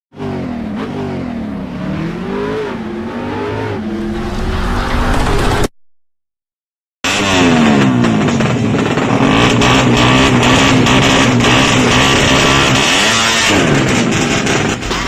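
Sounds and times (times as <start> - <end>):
motorcycle engine revving hard: 7.1 - 15.0.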